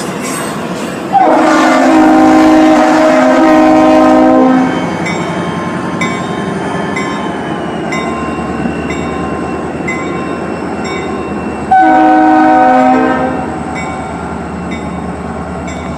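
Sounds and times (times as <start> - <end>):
freight train rumbling past: 0.0 - 15.9
train air horn blast: 1.1 - 4.8, 11.7 - 13.6.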